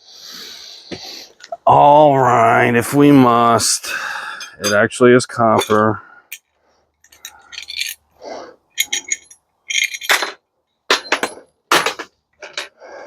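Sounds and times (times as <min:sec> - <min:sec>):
metal tools clinking and clanking: 0:04.4 - 0:04.9, 0:05.5 - 0:08.1, 0:08.7 - 0:12.8.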